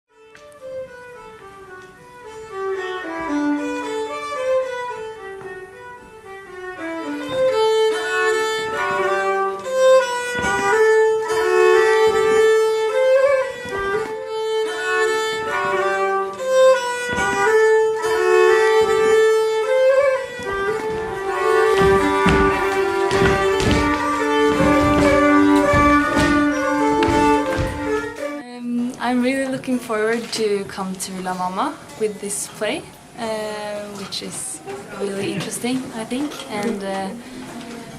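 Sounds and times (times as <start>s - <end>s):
solo fiddle melody: 0.1s - 28.6s.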